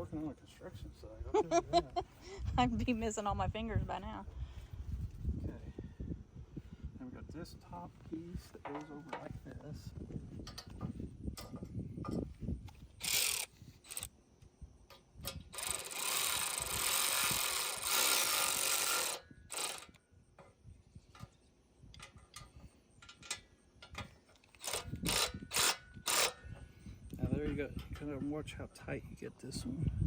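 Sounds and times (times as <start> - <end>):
clicks and clanks of metal parts: 8.6 - 9.3, 10.4 - 14.1, 14.9 - 26.7, 27.4 - 28.2
cordless power tool running: 13.0 - 14.1, 15.4 - 20.0, 24.6 - 26.4.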